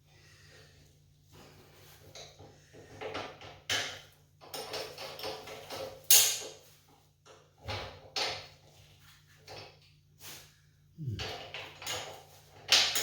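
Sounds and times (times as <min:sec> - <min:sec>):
wrenches clanking on steel frame: 0:02.3 - 0:06.6.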